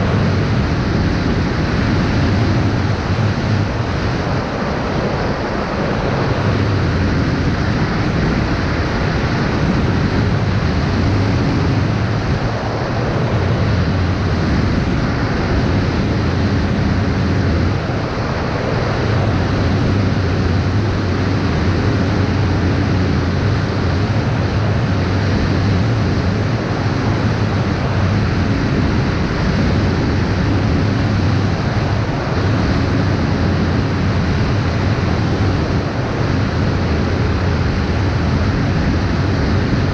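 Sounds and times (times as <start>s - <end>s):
low drone: 0.0s - 39.9s
wind on the microphone: 0.0s - 39.9s.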